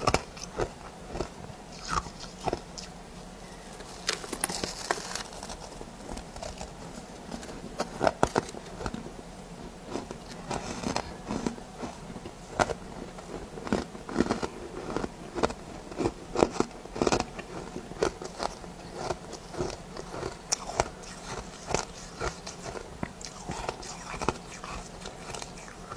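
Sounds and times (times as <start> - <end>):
person chewing crunchy ice: 0.0 - 2.9, 3.8 - 6.9, 12.6 - 25.9.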